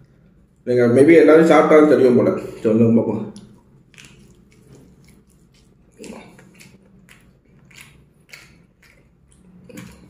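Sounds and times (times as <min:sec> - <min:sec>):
person chewing crispy food: 0:03.4 - 0:10.0.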